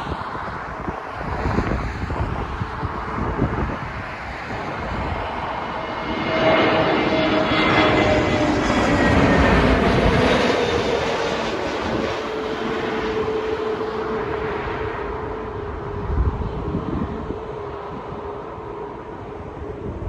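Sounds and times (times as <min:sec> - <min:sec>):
jet airliner engine whine: 0:00.0 - 0:20.0
wind gusts on microphone: 0:00.0 - 0:20.0.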